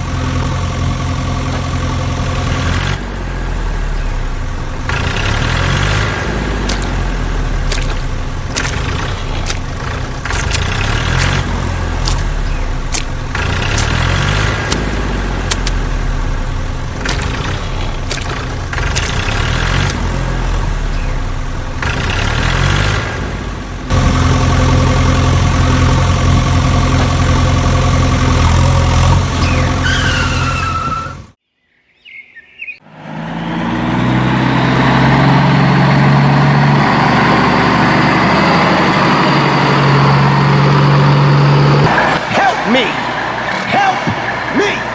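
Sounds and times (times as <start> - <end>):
vehicle engine running: 0.0 - 31.4, 32.8 - 44.9
engine starting up: 4.7 - 16.0, 16.9 - 20.1
sharp clicks: 4.9 - 15.9, 17.0 - 20.1.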